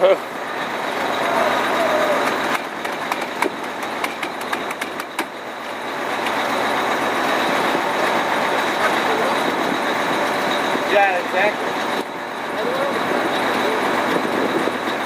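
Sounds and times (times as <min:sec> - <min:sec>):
fire engine idling: 0:00.0 - 0:15.0
sharp clicks: 0:02.2 - 0:05.3.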